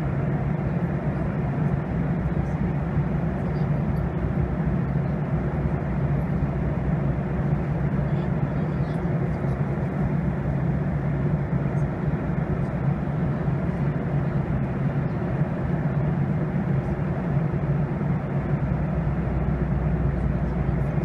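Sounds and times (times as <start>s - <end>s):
jet engine hum: 0.0s - 21.0s.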